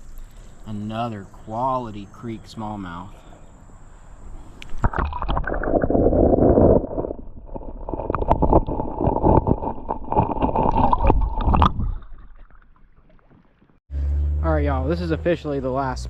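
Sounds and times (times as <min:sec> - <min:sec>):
underwater creek gurgling: 0:04.6 - 0:13.8
underwater bubbles and knocks: 0:04.8 - 0:13.8.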